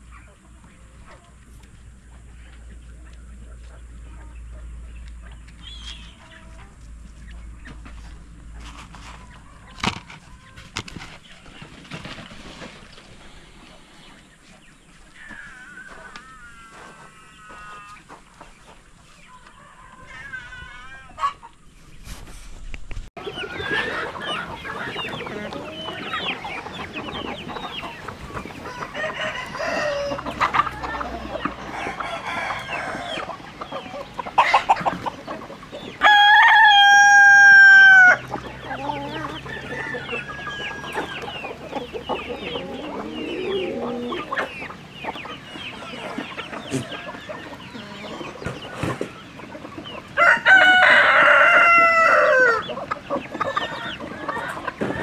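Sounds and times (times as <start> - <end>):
chickens clucking and chirping: 0.0 - 55.0
rooster crowing: 28.5 - 33.4, 36.0 - 44.4, 50.2 - 52.7.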